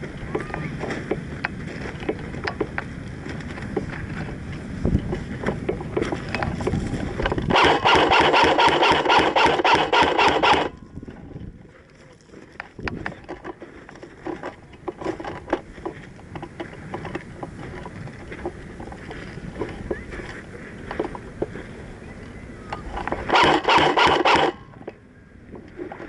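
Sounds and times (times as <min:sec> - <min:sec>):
rustling scraping and rubbing: 0:03.2 - 0:11.4
rattling rapid clicks: 0:07.2 - 0:10.7, 0:22.9 - 0:24.6.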